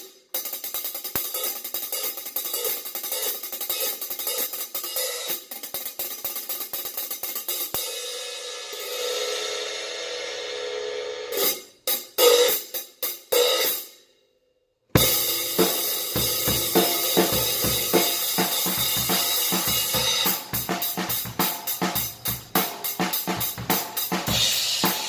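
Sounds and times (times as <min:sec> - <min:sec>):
hi-hat cymbals ringing: 0:00.0 - 0:13.8, 0:15.0 - 0:25.0
drum-kit groove: 0:15.0 - 0:25.0.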